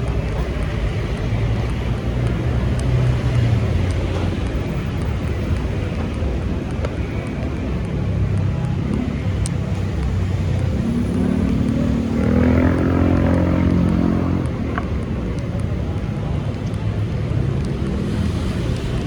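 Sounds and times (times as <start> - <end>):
street traffic rumble: 0.0 - 19.0
vehicle engine passing close: 10.6 - 14.9.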